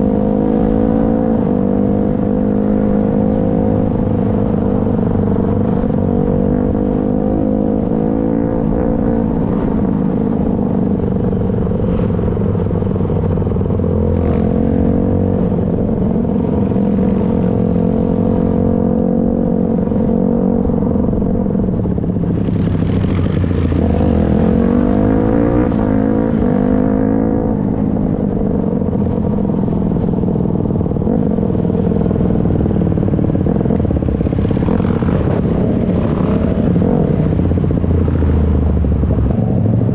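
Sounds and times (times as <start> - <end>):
dirt bike engine revving: 22.3 - 27.8, 31.0 - 38.4.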